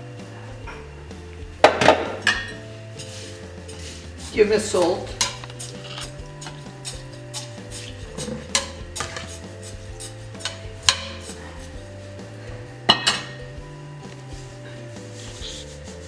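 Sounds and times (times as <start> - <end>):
soft background music: 0.0 - 16.0
metal spatula clinking on pot: 5.1 - 7.5, 8.2 - 9.4, 10.4 - 11.4, 12.9 - 13.4.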